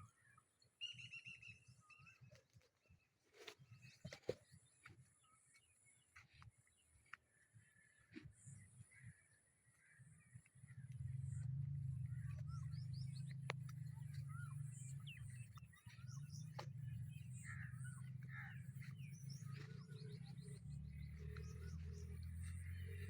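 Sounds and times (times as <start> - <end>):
birds chirping: 7.6 - 23.0
steady low rumble: 10.5 - 23.0.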